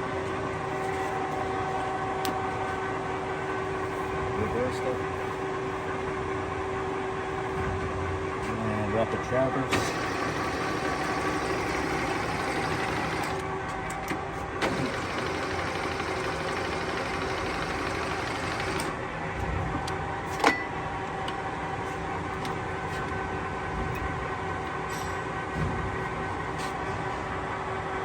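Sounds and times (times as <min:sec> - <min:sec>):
lathe humming: 0:09.7 - 0:13.5, 0:14.6 - 0:18.9.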